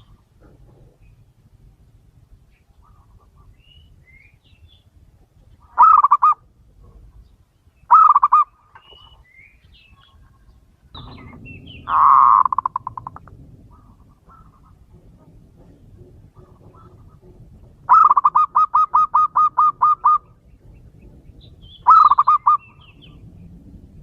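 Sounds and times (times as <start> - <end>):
small birds chirping: 2.4 - 14.8, 19.9 - 23.8
dove cooing: 5.7 - 7.0, 7.9 - 8.5, 11.0 - 21.2, 21.8 - 23.2.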